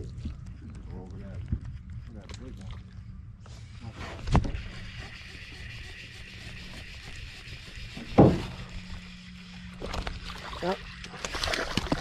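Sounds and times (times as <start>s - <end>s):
steady low hum: 0.0s - 12.0s
dull thump: 8.0s - 8.6s.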